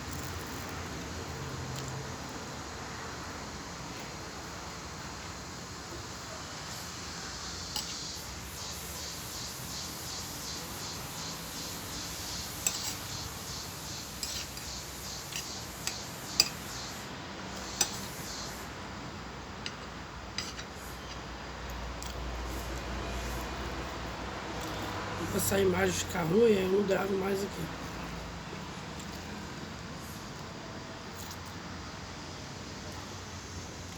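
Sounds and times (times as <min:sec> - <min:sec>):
background hiss: 0:00.0 - 0:33.9
cutlery clinking on plate: 0:19.6 - 0:20.8.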